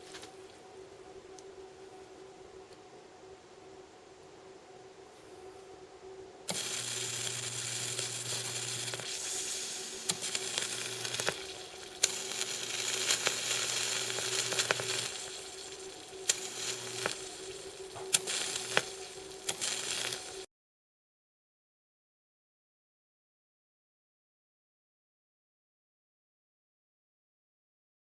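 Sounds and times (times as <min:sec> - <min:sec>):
high-voltage arc sizzling and snapping: 0:00.0 - 0:00.6, 0:06.5 - 0:20.5
low transformer hum: 0:00.0 - 0:20.4.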